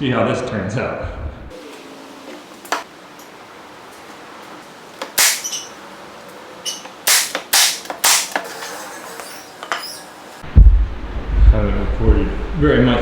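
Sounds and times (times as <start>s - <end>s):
sharp loud wood cracks: 5.2s - 5.5s, 7.1s - 8.5s.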